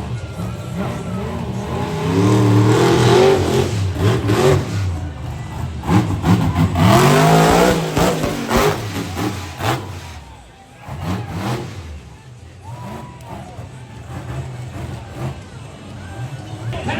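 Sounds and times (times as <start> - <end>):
monster truck engine revving: 0.0 - 16.9
sharp bangs: 6.6 - 10.1.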